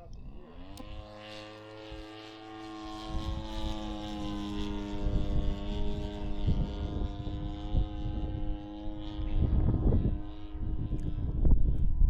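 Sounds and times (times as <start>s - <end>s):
model plane engine drone: 0.0s - 12.0s
wind buffeting microphone: 2.8s - 12.0s.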